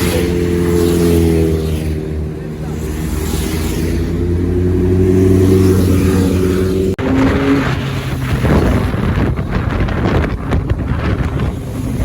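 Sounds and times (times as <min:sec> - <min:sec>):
motorcycle engine accelerating: 0:00.0 - 0:12.0
wind noise on microphone: 0:04.9 - 0:12.0.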